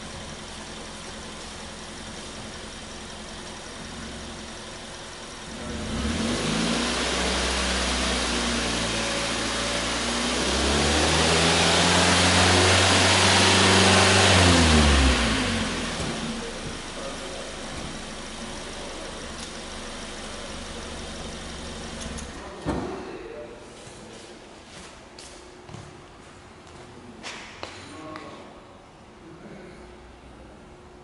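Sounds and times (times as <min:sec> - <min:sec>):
car engine idling and revving: 0:00.0 - 0:22.5.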